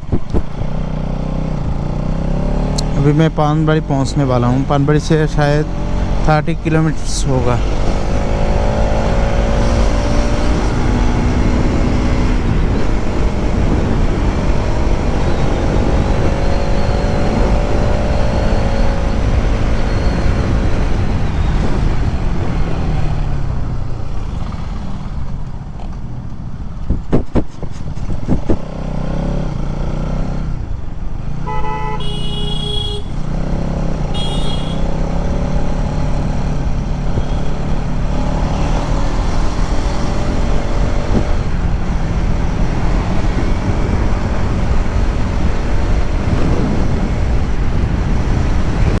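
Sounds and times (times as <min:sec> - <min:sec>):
wind rumble: 0:00.0 - 0:28.8, 0:35.3 - 0:49.0
motorcycle engine running: 0:00.0 - 0:49.0
vehicle horn honking: 0:31.4 - 0:33.2, 0:34.1 - 0:34.9.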